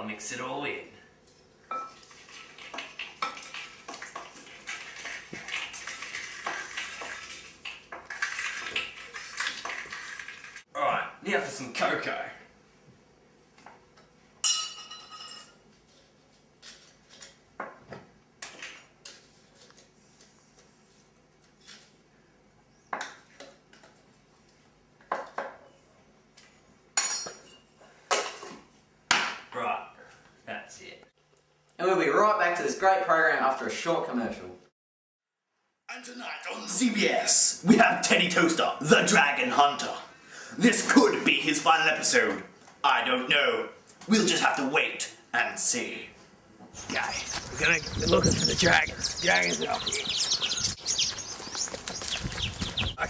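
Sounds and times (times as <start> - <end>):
utensil stirring and scraping: 1.8 - 10.7.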